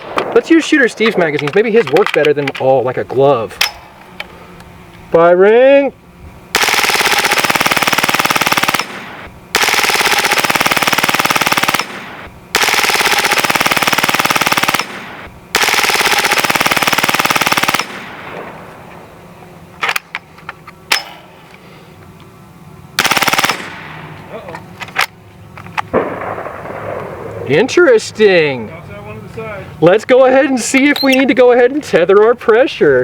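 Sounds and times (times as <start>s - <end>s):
air rifle firing bursts: 6.5s - 18.4s, 23.0s - 24.0s.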